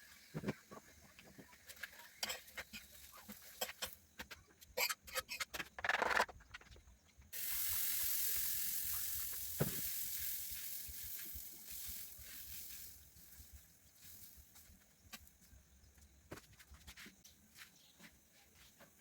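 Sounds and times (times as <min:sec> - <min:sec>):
peanuts sizzling in a hot pan: 0:00.0 - 0:04.1, 0:07.3 - 0:15.3.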